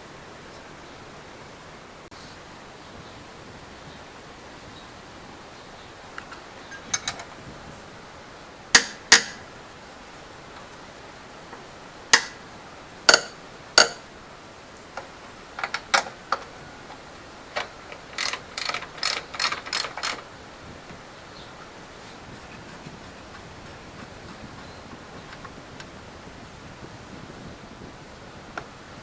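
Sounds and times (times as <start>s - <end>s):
sharp metallic clicks: 6.2s - 7.3s, 8.7s - 9.5s, 12.1s - 12.5s, 13.1s - 14.1s, 15.0s - 21.0s
hand-tool ratchet clicking: 6.7s - 7.3s, 8.8s - 9.4s, 12.1s - 12.4s, 13.1s - 14.1s, 15.0s - 20.3s.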